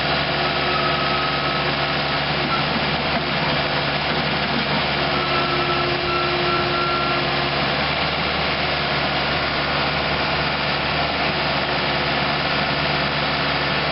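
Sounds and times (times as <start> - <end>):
diesel engine running: 0.0 - 13.9.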